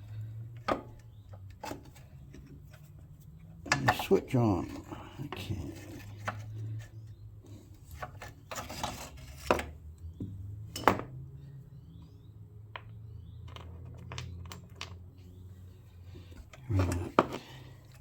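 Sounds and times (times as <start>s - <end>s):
clicks and knocks of tools: 3.6s - 4.1s.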